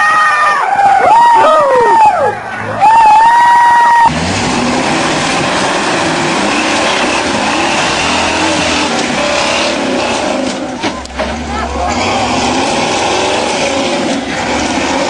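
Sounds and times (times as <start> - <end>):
loud rushing noise: 2.4 - 15.0
truck engine running hard: 4.1 - 15.0.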